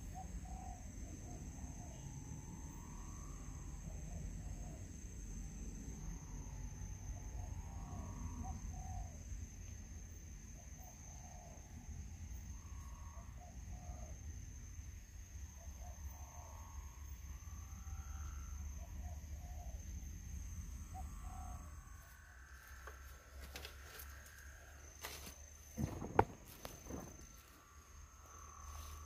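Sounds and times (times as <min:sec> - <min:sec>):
sharp knocks and rustles: 0:25.0 - 0:27.6.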